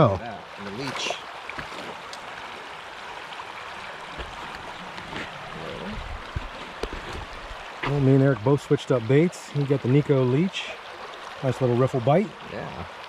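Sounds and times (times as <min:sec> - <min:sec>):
creek water rushing: 0:00.0 - 0:13.0
low bumps: 0:04.2 - 0:08.2.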